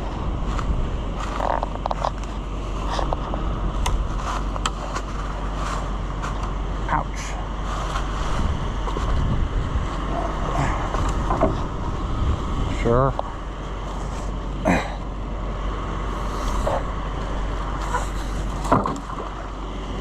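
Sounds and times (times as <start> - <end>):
vehicle engine running: 0.0 - 20.0
wind noise: 8.1 - 13.0, 16.1 - 19.5.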